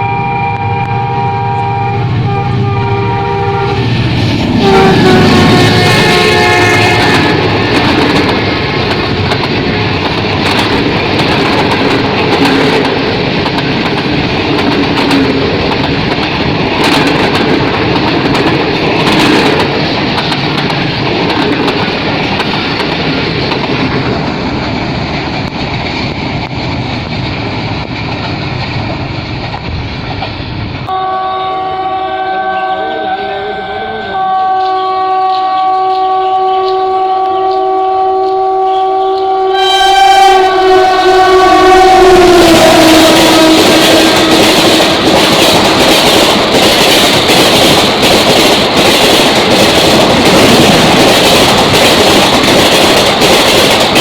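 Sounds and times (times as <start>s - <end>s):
train horn: 0.0s - 8.0s, 30.9s - 45.3s
rush of passing train cars: 0.0s - 54.0s
wheels clacking over rail joints: 6.2s - 30.9s, 43.0s - 54.0s.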